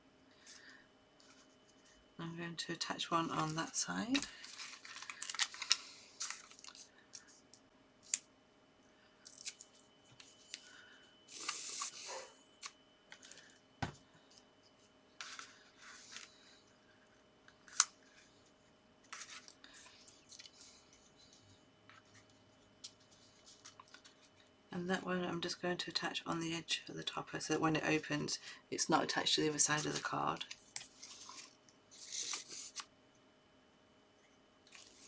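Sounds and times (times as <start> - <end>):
paper rustling: 3.4 - 7.3.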